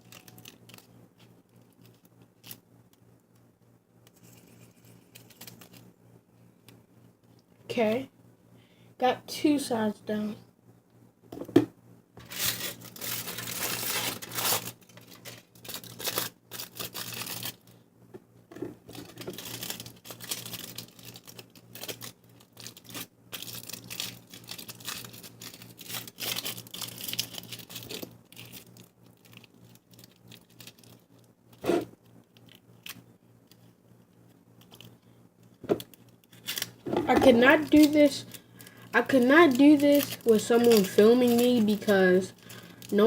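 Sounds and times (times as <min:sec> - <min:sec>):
aluminium foil crinkling and tearing: 0:00.0 - 0:02.6, 0:04.1 - 0:05.9, 0:12.2 - 0:17.8, 0:18.9 - 0:31.6, 0:32.2 - 0:33.8, 0:34.6 - 0:35.0, 0:35.8 - 0:43.0.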